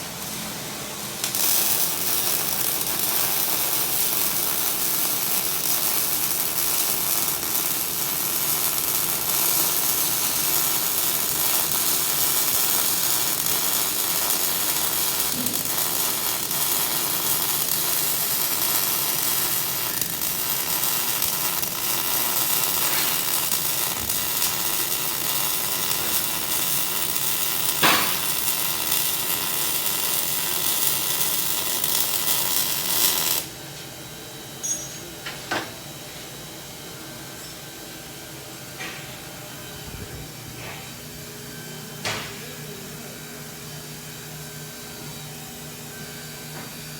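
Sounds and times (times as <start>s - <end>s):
welding arc crackling: 0.0s - 33.6s
welding arc pop: 1.2s - 33.5s.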